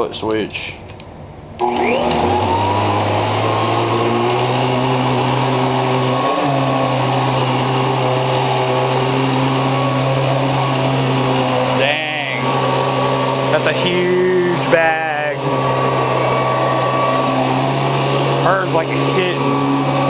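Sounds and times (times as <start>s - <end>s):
vacuum cleaner foot switch: 0.4s - 2.7s
vacuum cleaner motor whine: 1.6s - 20.0s.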